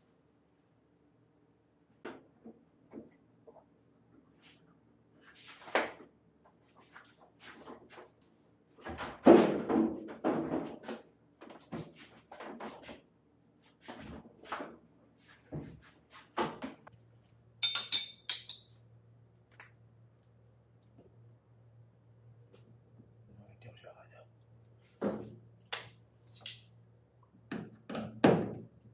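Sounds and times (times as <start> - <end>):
low steady hum: 16.8 - 28.9
tools and metal parts clinking: 17.6 - 18.8.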